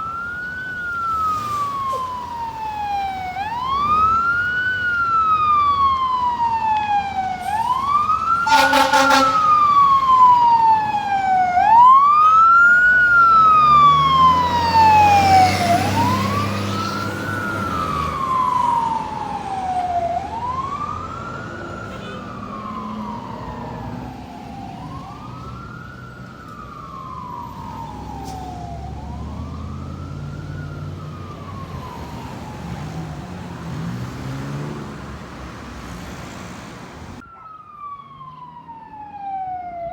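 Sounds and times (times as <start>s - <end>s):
truck engine rumbling: 0.0s - 37.3s
fire truck wail siren: 0.0s - 39.9s
horn blast: 8.4s - 9.8s.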